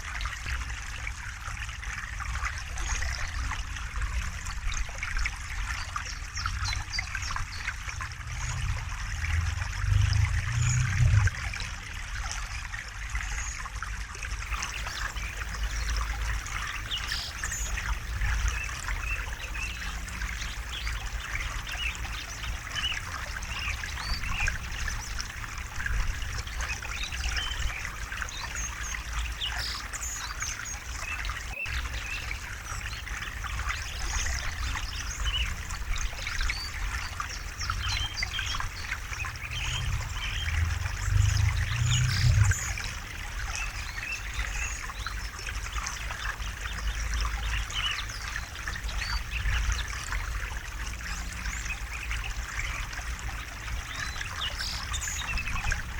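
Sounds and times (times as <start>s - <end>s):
deep water rumble: 0.0s - 55.9s
river water babbling over rocks: 14.4s - 55.9s.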